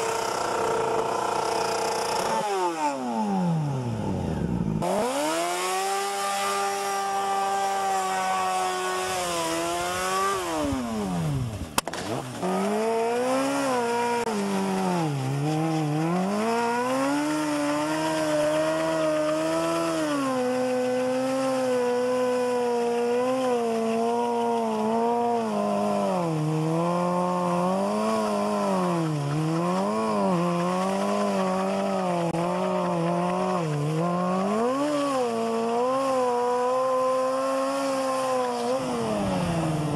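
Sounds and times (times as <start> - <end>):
motorcycle engine at high revs: 0.0 - 39.9.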